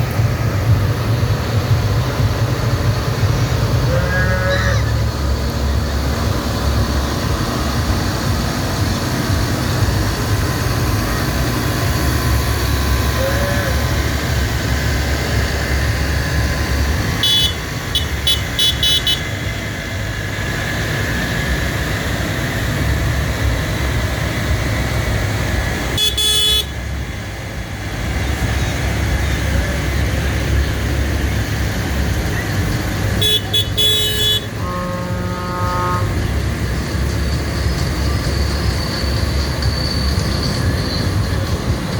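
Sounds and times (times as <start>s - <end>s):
tractor engines droning: 0.0s - 41.9s
horn toots: 3.7s - 5.2s, 12.8s - 15.3s, 16.5s - 19.6s, 25.9s - 26.8s, 33.1s - 36.4s.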